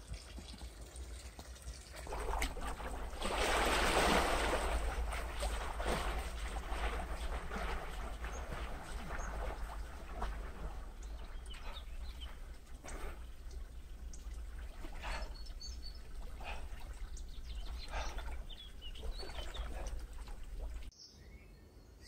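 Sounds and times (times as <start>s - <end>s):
swimmer splashing through water: 2.0s - 20.9s
steady low rumble: 2.1s - 20.9s
bird chirps: 16.9s - 20.4s.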